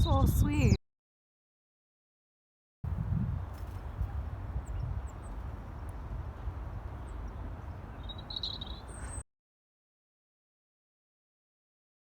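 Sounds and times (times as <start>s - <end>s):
small birds chirping: 3.2s - 9.2s
bird call: 3.8s - 9.2s.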